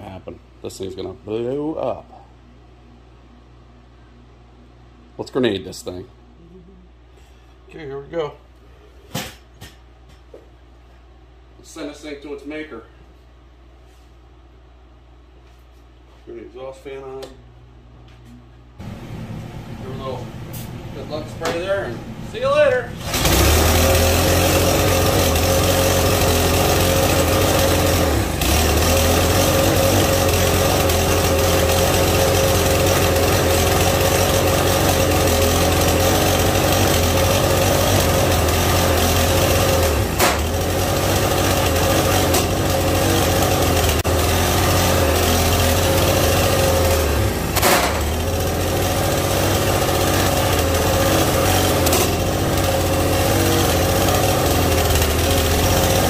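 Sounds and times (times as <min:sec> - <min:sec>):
lawn mower engine running flat out: 0:22.9 - 0:56.0.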